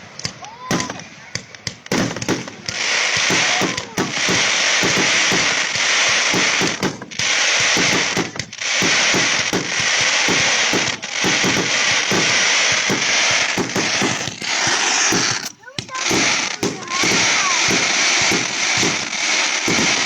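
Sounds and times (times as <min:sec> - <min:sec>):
fireworks crackling: 0:00.0 - 0:20.0.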